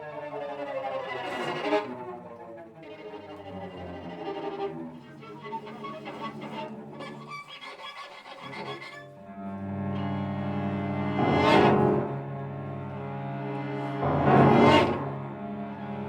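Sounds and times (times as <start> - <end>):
violin: 0.0 - 16.0
piano: 8.8 - 16.0
sustained low cello notes: 9.0 - 16.0.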